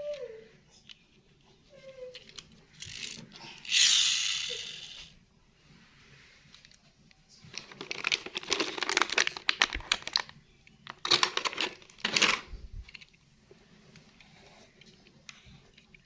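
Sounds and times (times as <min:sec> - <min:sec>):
plastic crinkling and rattling: 0:02.1 - 0:05.0, 0:07.4 - 0:13.2.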